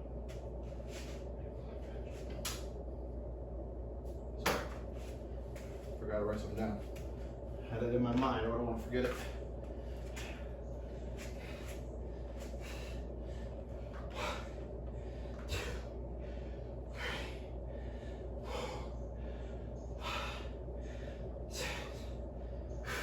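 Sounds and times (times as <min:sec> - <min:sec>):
low hum: 0:00.0 - 0:23.0
man breathing hard: 0:09.1 - 0:23.0.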